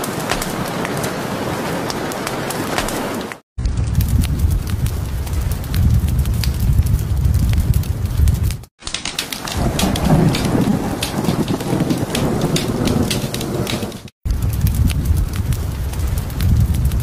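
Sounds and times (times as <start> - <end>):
fireplace fire crackling: 0.0 - 17.0
steady rain: 0.0 - 17.0
rolling thunder: 3.6 - 8.6, 9.3 - 17.0.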